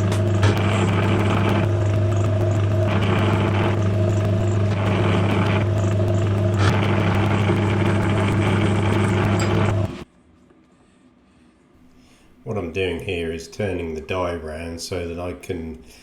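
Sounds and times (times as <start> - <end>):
metal lathe motor hum: 0.0 - 10.0.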